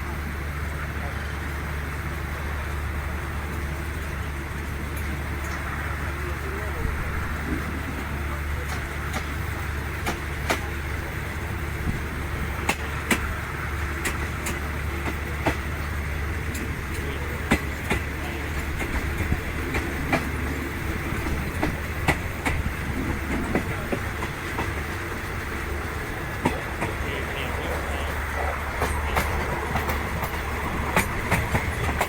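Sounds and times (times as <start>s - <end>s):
train coach rumble: 0.0s - 32.0s
wheels clicking and knocking: 8.6s - 32.0s.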